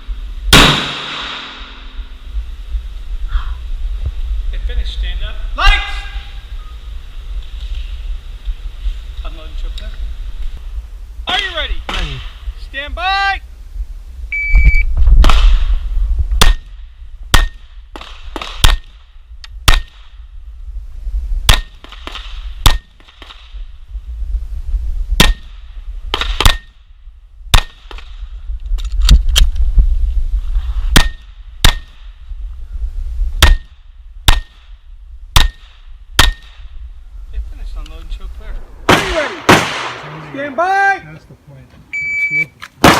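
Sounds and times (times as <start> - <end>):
pistol shots: 0.5 - 1.8, 38.8 - 40.4.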